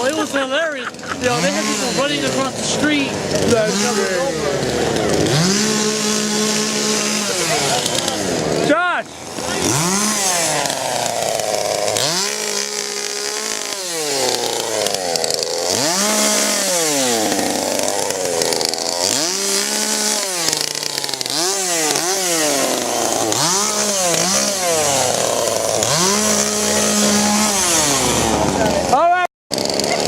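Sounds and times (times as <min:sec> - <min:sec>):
chainsaw revving: 0:00.0 - 0:30.0.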